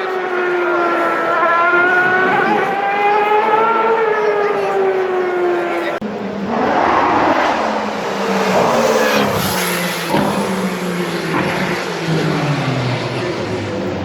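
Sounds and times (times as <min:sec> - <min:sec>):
race car engine running: 0:00.0 - 0:14.0.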